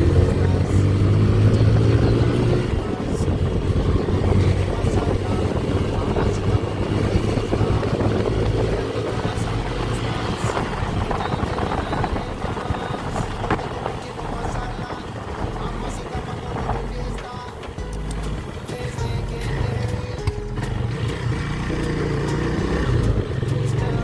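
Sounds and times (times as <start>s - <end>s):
wind noise on microphone: 0.0s - 24.0s
small motorcycle engine running: 20.6s - 24.0s.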